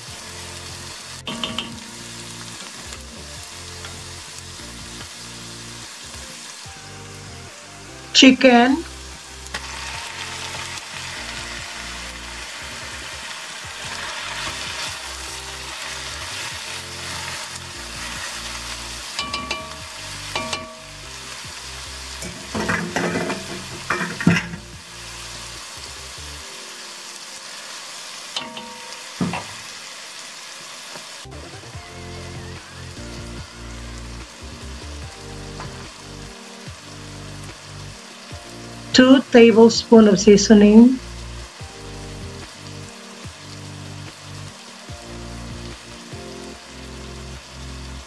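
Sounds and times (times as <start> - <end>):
chicken sizzling in a pot: 0.0 - 48.0
spatula scraping and knocking pot: 22.2 - 24.7.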